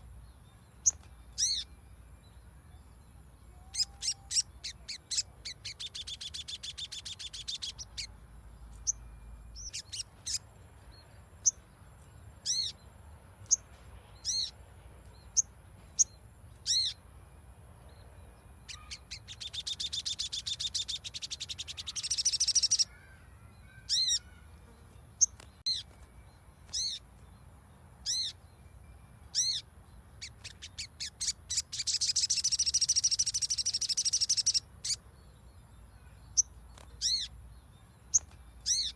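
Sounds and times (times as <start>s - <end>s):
bird chattering trills: 3.6s - 8.2s, 18.6s - 23.1s, 23.7s - 24.5s, 30.2s - 35.0s, 36.2s - 37.4s, 38.1s - 38.9s.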